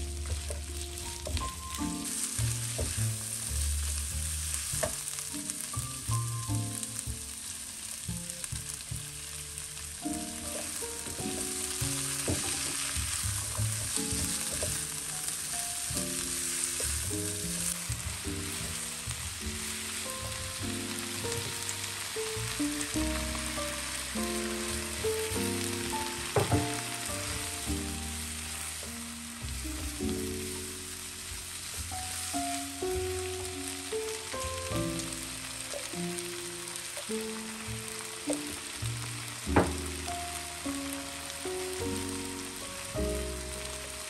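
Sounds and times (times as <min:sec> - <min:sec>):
quiet background music: 0:00.0 - 0:44.0
stir-fry sizzling in a wok: 0:00.0 - 0:44.0
spatula tapping and scraping: 0:13.5 - 0:15.0.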